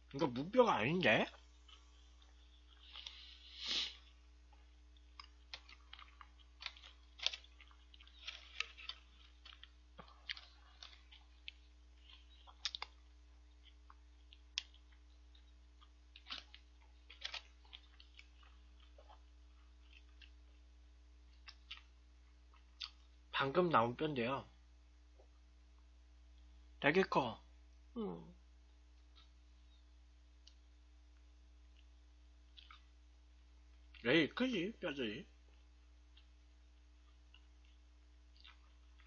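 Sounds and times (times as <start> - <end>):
quiet chewing: 1.0 - 23.3, 28.9 - 34.0, 35.4 - 39.0.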